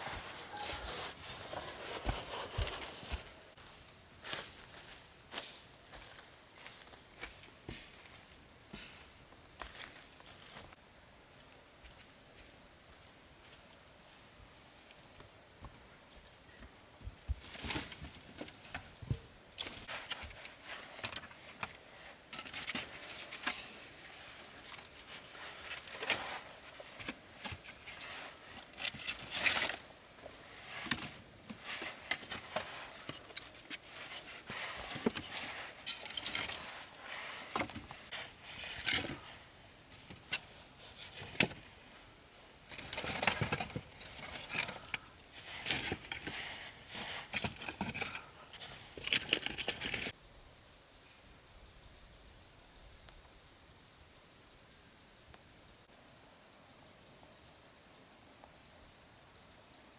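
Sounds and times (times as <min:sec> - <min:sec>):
objects being handled: 0:00.0 - 0:03.6, 0:17.3 - 0:41.8, 0:42.7 - 0:50.2.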